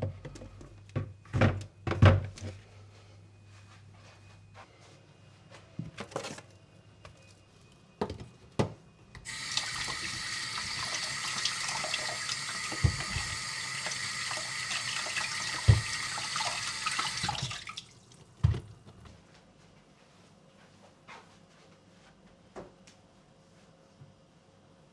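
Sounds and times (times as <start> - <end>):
tap water running into sink: 9.2 - 18.3.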